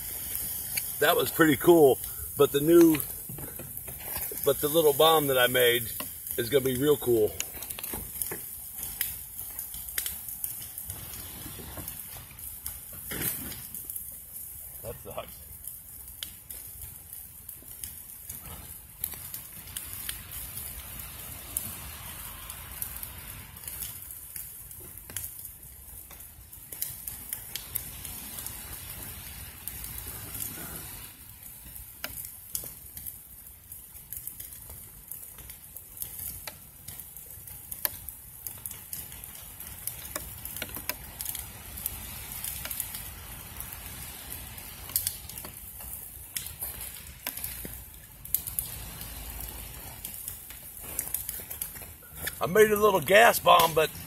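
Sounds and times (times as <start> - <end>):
fire crackling and sizzling: 0.0 - 54.0
sharp pops: 0.2 - 14.0.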